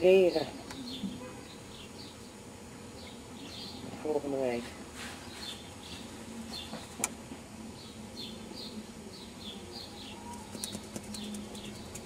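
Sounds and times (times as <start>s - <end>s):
small bird chirping: 7.8s - 12.0s.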